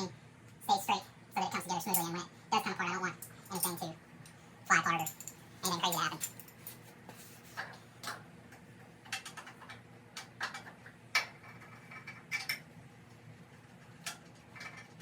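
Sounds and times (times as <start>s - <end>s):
metal tools clinking: 1.5s - 2.2s, 3.2s - 3.9s, 4.7s - 6.9s.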